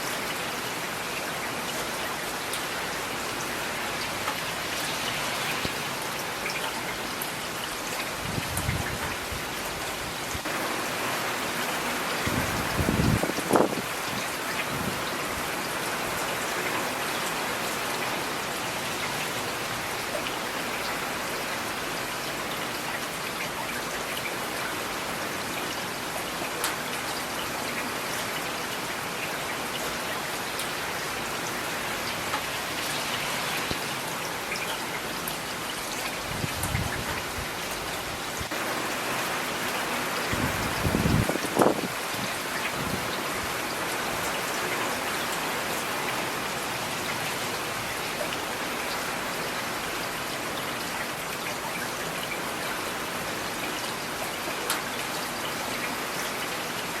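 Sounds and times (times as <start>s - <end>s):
rain on hard surfaces: 0.0s - 57.0s.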